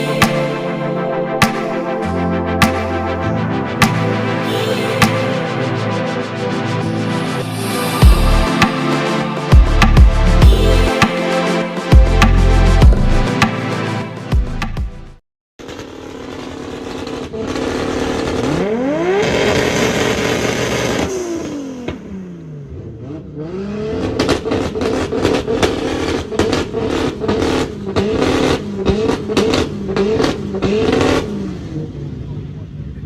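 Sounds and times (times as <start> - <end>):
car engine revving: 15.7 - 32.8.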